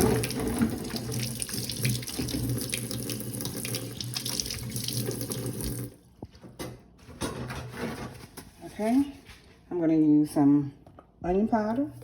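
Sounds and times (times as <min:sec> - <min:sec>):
tap water running into sink: 0:00.0 - 0:06.0.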